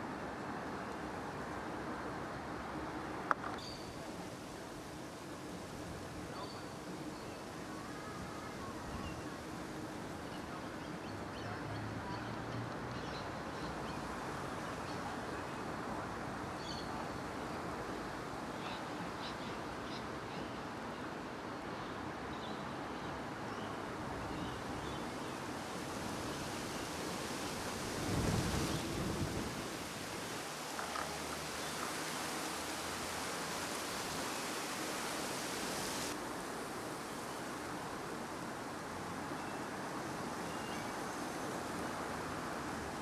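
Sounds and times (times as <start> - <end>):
wind noise on microphone: 26.0 - 30.4.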